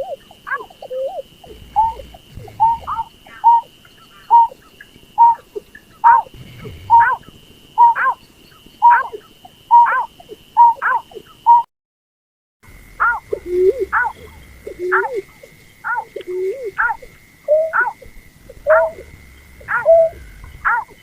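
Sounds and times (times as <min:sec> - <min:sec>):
bird lure hooting call: 0:00.0 - 0:04.6, 0:06.9 - 0:08.2, 0:13.0 - 0:21.0.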